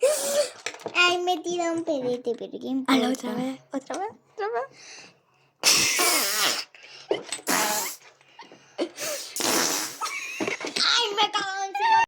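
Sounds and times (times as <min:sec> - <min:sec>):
farts: 0:05.6 - 0:06.7, 0:07.4 - 0:08.0, 0:09.4 - 0:10.1.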